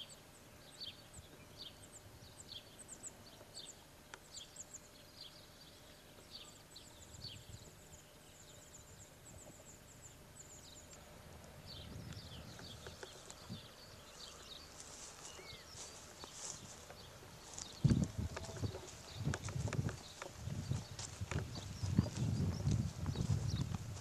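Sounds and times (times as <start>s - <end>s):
small birds chirping: 0.0s - 24.0s
low rumble on microphone: 10.4s - 24.0s.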